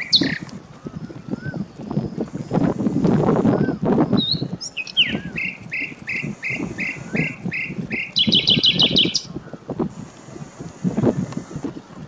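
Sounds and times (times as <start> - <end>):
bird calling: 0.0 - 1.8, 3.5 - 9.7.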